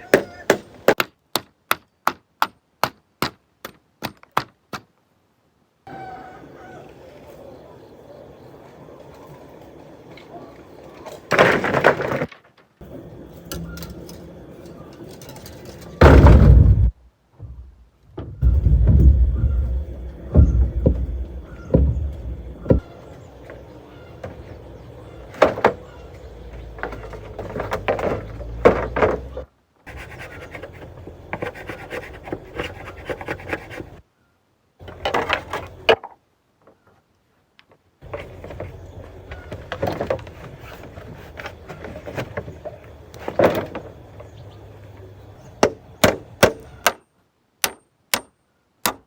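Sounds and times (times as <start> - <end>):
heavy thumps of timber: 16.0 - 22.9, 25.3 - 29.4
wooden knocks: 17.4 - 22.9.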